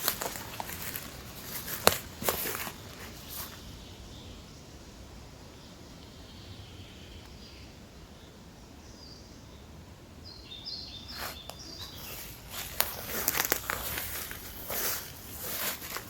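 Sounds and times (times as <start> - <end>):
twigs snapping: 0.0 - 3.6, 11.5 - 16.0
footsteps through undergrowth: 0.0 - 3.8, 11.1 - 16.0
bird singing: 0.0 - 14.7.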